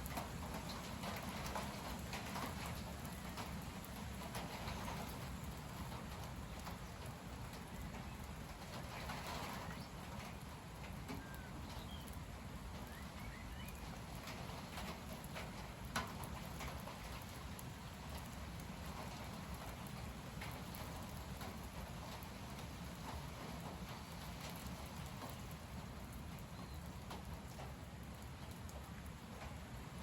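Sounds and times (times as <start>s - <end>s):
gusty wind through trees: 0.0s - 30.0s
faint bird chirps: 9.4s - 10.1s, 11.2s - 12.2s, 12.8s - 13.9s.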